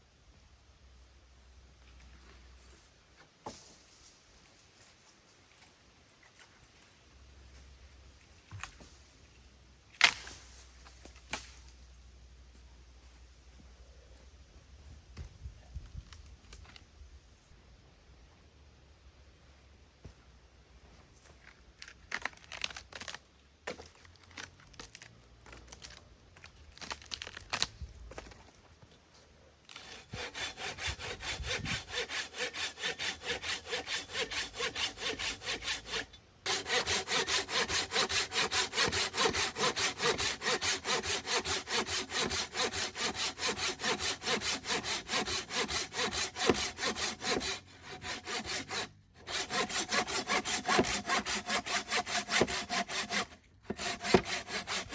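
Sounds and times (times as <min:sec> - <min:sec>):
hand saw cutting wood: 0:29.7 - 0:54.9.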